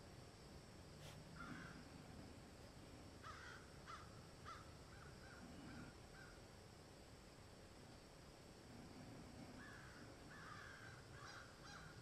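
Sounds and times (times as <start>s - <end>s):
bird calling: 3.2s - 6.4s, 9.6s - 12.0s.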